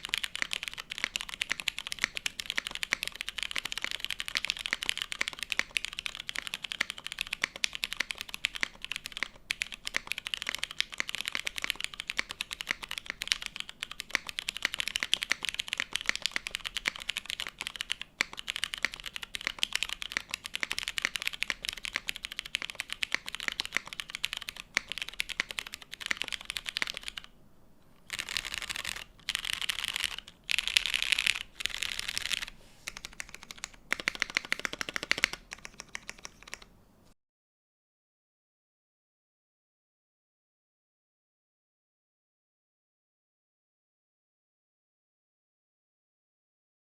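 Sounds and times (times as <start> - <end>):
fast typing on mechanical keyboard: 0.0 - 27.3, 28.0 - 36.7.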